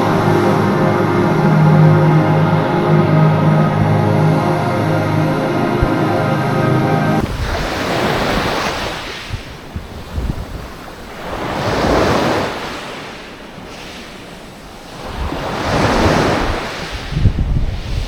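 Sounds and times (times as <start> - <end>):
sea waves breaking on shore: 0.0 - 18.0
wind buffeting microphone: 7.2 - 18.0.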